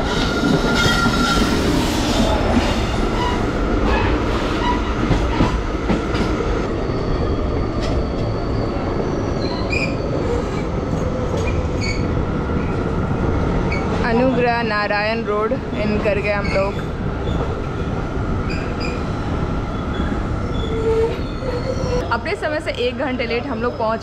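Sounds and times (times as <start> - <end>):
train wheels rumbling on rail: 0.0 - 24.0
brief wheel squeals: 6.8 - 10.6, 11.4 - 12.1, 19.8 - 22.0.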